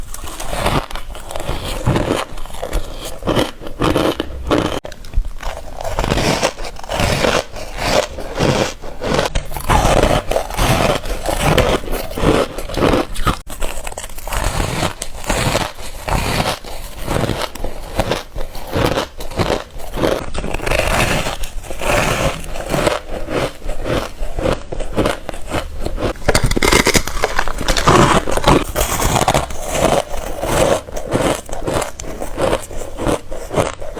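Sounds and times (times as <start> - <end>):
chewing ice crunching: 0.0 - 33.9.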